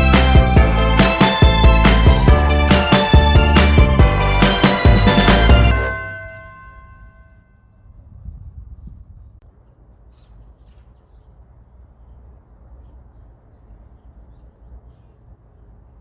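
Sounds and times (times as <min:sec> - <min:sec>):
small birds chirping: 0:09.6 - 0:16.0.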